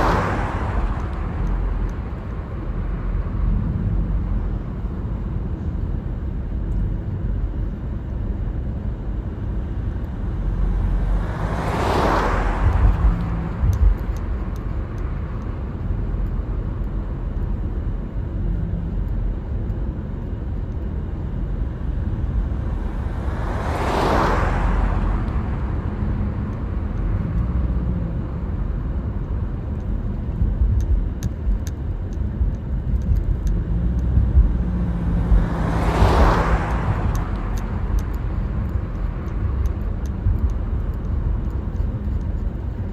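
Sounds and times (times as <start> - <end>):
vehicle rushing past: 0.0 - 1.7, 10.5 - 14.0, 22.5 - 27.9, 33.6 - 39.6
car driving road noise: 0.0 - 42.9.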